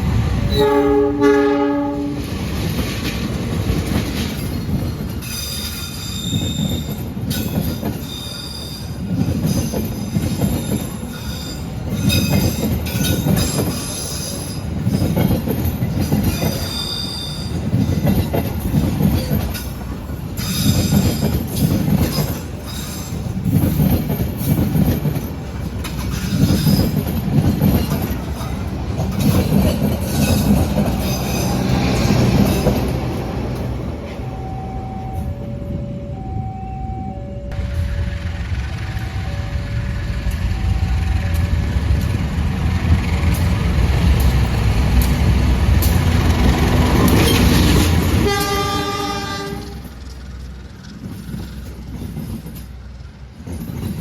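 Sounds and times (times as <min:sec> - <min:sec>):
wheels beating over rail joints: 0:00.0 - 0:34.4, 0:37.5 - 0:54.0.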